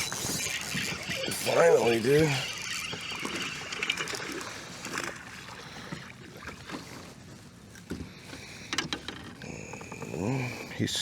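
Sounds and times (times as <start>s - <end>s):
water splashing against kayak: 0.0s - 7.4s.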